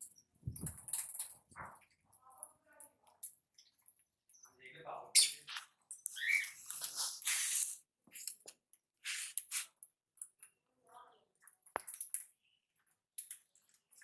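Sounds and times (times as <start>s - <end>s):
pet birds chirping and squawking: 3.6s - 7.7s.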